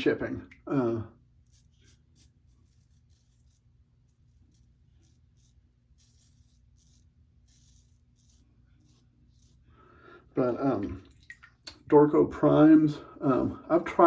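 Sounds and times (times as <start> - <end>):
razor scraping stubble: 0.8 - 9.8.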